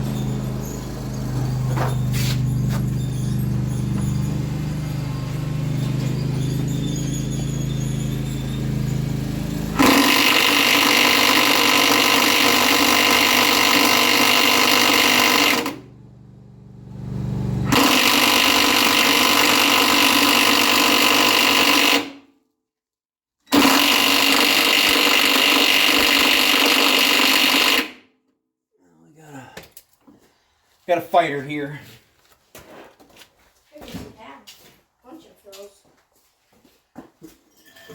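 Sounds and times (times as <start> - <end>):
handheld power tool running: 0.0 - 15.9, 17.6 - 22.2, 23.5 - 28.0.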